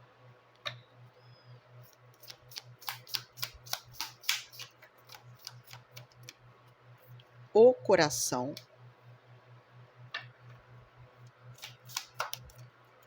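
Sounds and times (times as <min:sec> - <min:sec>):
cards snapping and tapping: 0:02.2 - 0:06.4, 0:11.6 - 0:12.6.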